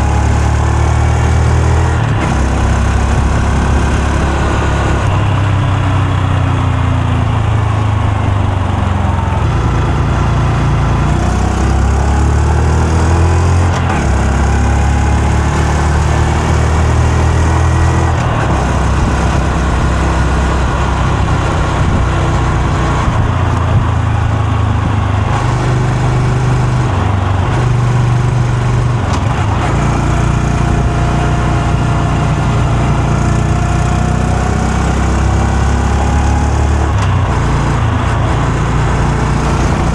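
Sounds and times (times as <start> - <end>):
motorcycle exhaust revving: 0.0 - 39.9.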